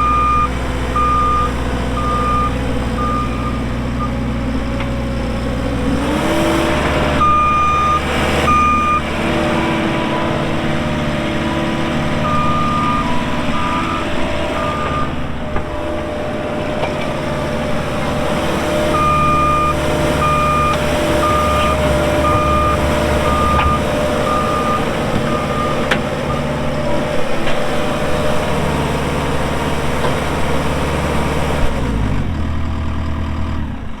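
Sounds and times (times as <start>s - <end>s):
backup alarm beeping: 0.0s - 4.2s, 7.2s - 9.1s, 12.2s - 15.2s, 18.9s - 26.5s
diesel engine running: 0.0s - 34.0s.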